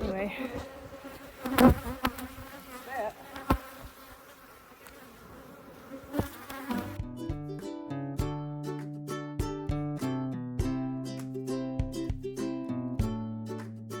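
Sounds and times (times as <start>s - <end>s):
bees buzzing: 0.0s - 7.0s
plucked string music: 6.6s - 14.0s.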